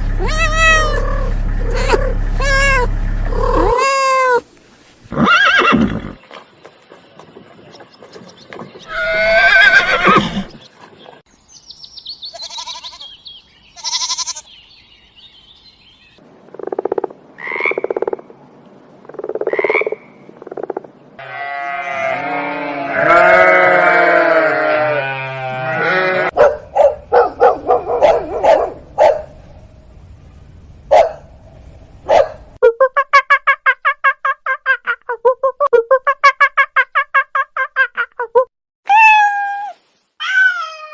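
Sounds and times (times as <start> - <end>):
animal calls: 0.2 - 4.4.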